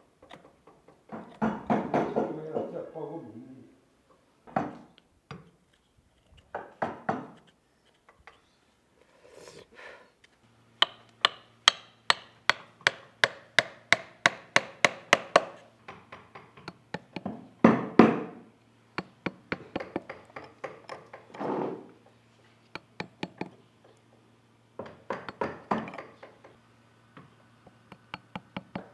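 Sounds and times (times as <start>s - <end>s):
mallet striking chisel into wood: 10.8s - 21.4s, 22.7s - 23.6s, 24.8s - 26.1s, 27.7s - 28.9s.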